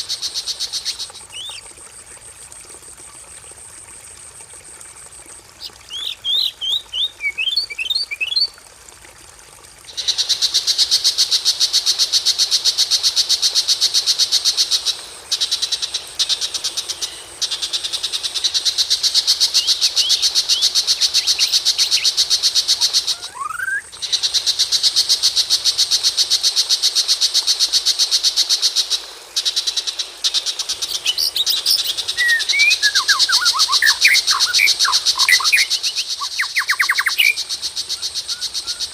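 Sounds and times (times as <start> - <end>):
songbird trilling and chirping: 21.2 - 22.1, 30.9 - 37.4.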